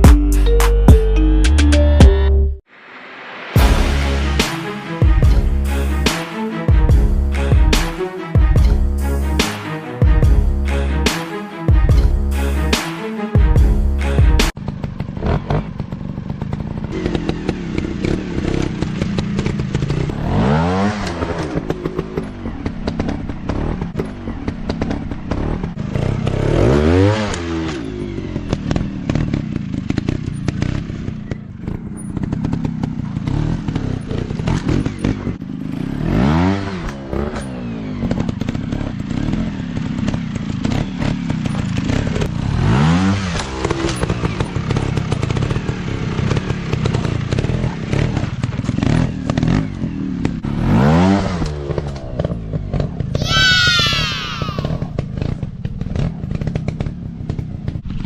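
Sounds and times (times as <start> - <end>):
dirt bike engines revving: 14.0 - 58.0.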